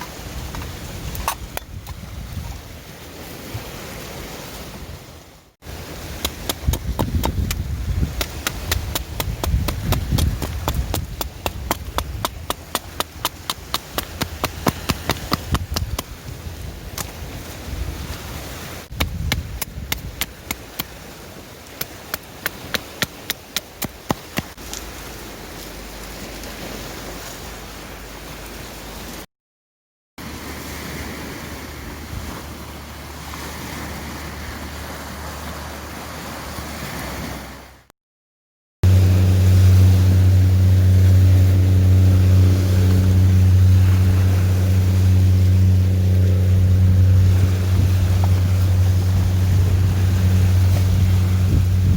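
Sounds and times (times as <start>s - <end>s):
surf rushing: 2.2s - 29.2s, 30.2s - 37.8s, 38.8s - 51.9s
fire steel striking flint: 6.0s - 16.2s, 21.7s - 24.8s
low steady drone: 38.8s - 51.9s.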